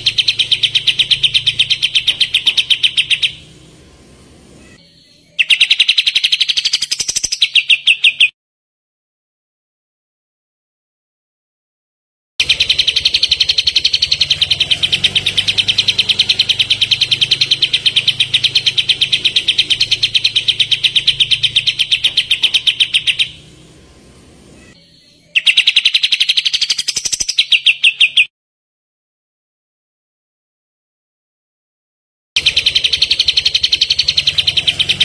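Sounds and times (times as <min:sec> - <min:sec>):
bird chattering trill: 0:00.0 - 0:03.8, 0:04.6 - 0:08.3, 0:12.4 - 0:28.3, 0:32.4 - 0:35.0.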